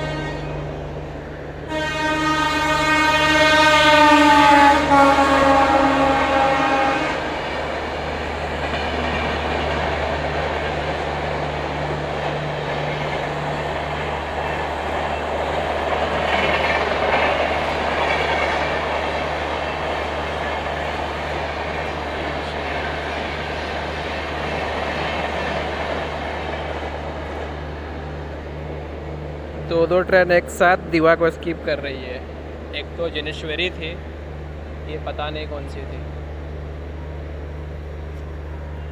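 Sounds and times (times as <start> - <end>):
locomotive horn: 0.0 - 0.8, 1.6 - 7.5
train wheels rushing on rail: 0.0 - 38.9.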